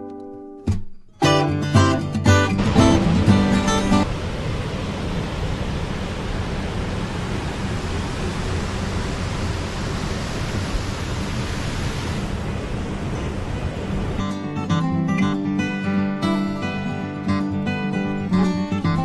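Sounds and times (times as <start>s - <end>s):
water rushing: 2.4s - 14.7s.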